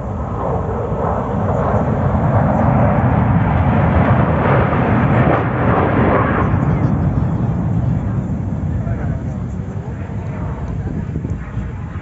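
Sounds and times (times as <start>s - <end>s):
jet aircraft roaring past: 0.0s - 12.0s.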